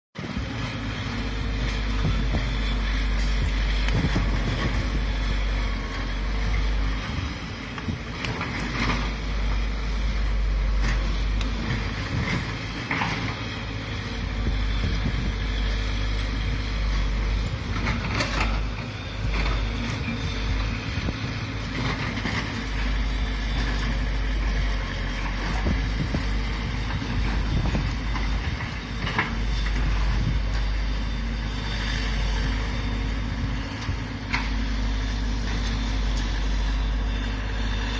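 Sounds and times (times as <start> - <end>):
wind buffeting microphone: 0.2 - 12.9, 13.9 - 34.2
excavator engine rumbling: 0.2 - 37.9.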